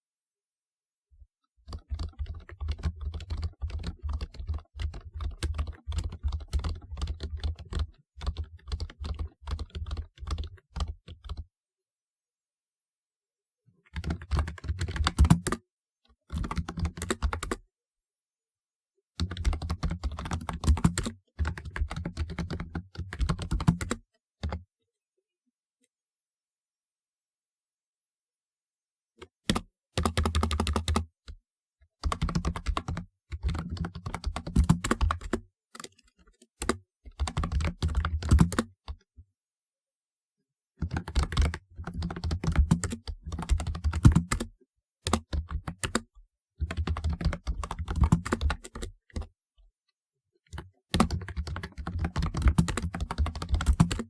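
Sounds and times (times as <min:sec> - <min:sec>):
fast typing on keyboard: 0:01.7 - 0:11.4, 0:13.9 - 0:15.6, 0:16.3 - 0:17.6, 0:19.2 - 0:24.6, 0:29.5 - 0:31.1, 0:32.0 - 0:35.9, 0:36.6 - 0:38.7, 0:40.8 - 0:49.3, 0:50.6 - 0:54.0.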